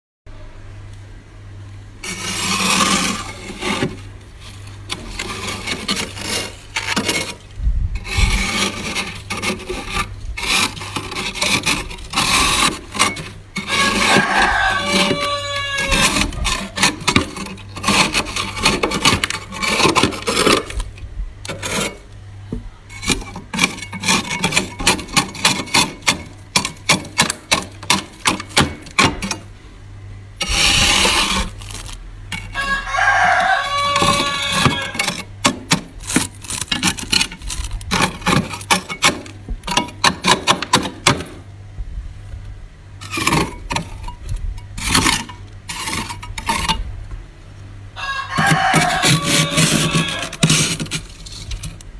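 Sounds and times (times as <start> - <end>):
freezer frost crunching: 2.0 - 22.1, 30.4 - 41.0, 48.1 - 51.9
frost scraping: 2.0 - 22.1, 22.7 - 29.6, 30.4 - 41.4, 43.0 - 46.9, 48.0 - 51.9.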